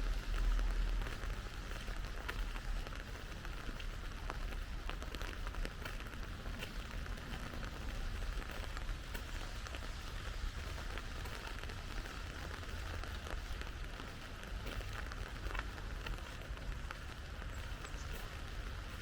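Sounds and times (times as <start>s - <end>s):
rain hiss: 0.0s - 19.0s
raindrop hits: 0.0s - 19.0s.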